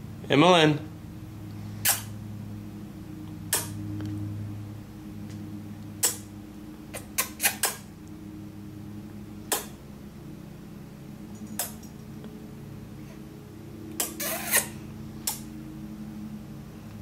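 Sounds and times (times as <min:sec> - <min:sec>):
steady low hum: 0:00.0 - 0:17.0
lip-smacking kiss noises: 0:01.8 - 0:02.1, 0:03.5 - 0:03.8, 0:06.0 - 0:06.3, 0:06.9 - 0:07.9, 0:09.5 - 0:09.8, 0:11.5 - 0:11.9, 0:13.9 - 0:15.5.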